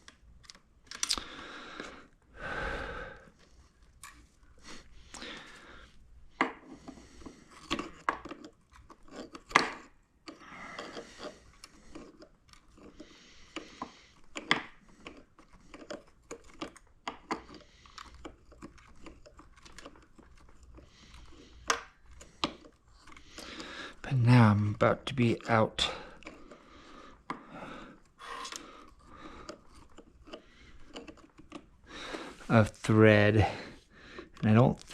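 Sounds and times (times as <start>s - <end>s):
plastic parts clicking: 0.0s - 1.9s, 7.5s - 24.0s, 26.1s - 31.8s.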